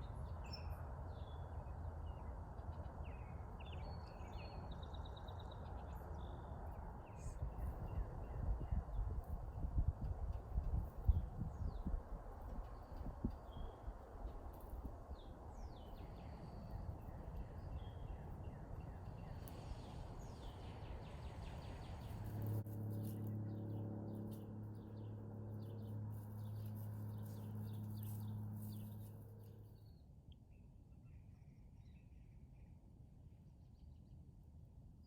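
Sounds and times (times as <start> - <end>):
small birds chirping: 3.1 - 30.0
steady low hum: 6.6 - 29.9
outdoor rustling: 7.2 - 29.9.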